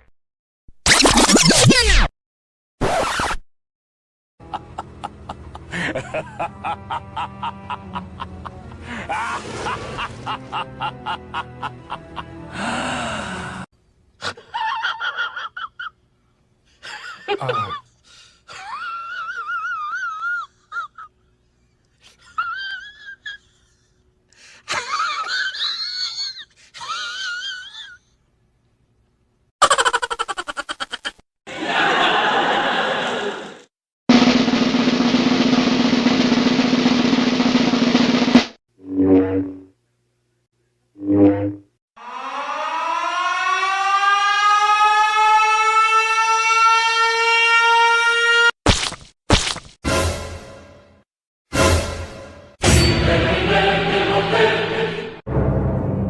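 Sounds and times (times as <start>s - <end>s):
siren wailing: 42.0s - 48.5s.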